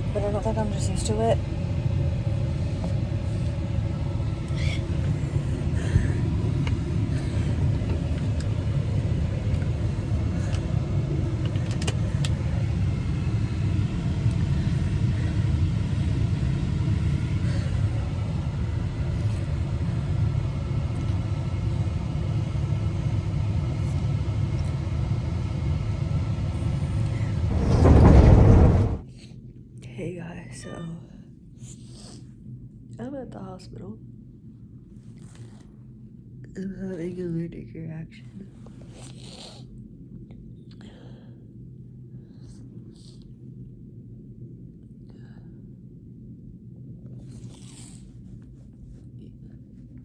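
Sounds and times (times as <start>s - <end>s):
car interior engine drone: 0.0s - 29.0s
burst of low noise: 27.1s - 29.0s.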